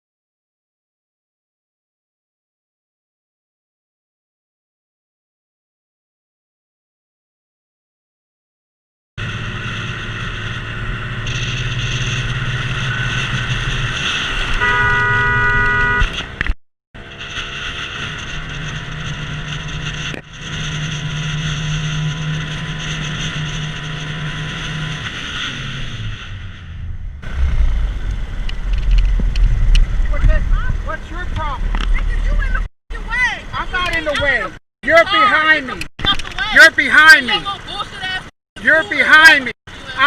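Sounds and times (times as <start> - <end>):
car road and engine noise: 9.2 - 40.0
car horn: 14.5 - 16.4.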